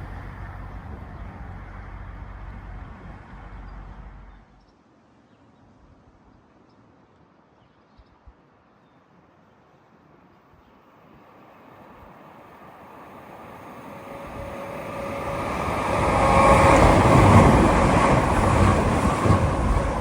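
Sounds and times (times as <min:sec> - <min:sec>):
rail noise: 0:00.0 - 0:04.5, 0:10.0 - 0:20.0
train passing with rumble: 0:00.0 - 0:04.5, 0:10.2 - 0:20.0.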